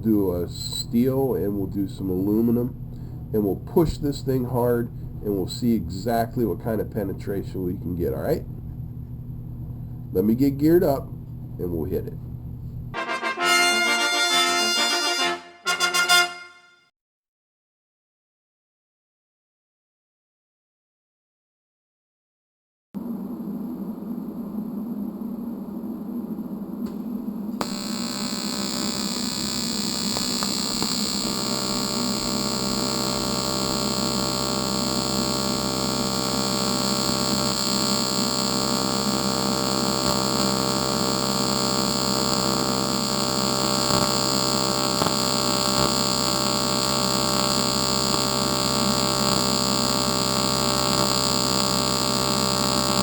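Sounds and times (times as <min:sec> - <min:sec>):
welding arc buzzing: 0:27.6 - 0:53.0.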